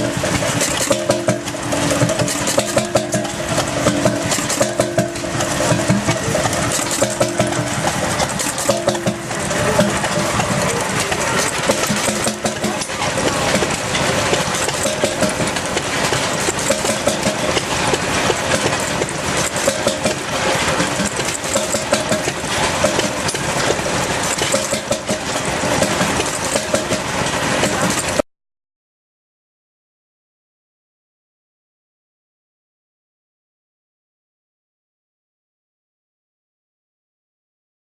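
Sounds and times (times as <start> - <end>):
oil engine running: 0.0 - 28.3.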